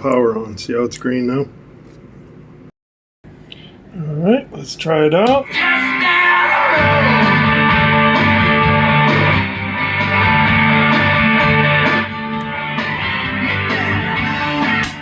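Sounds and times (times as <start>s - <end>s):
plucked bass strings through amplifier: 6.8s - 15.0s.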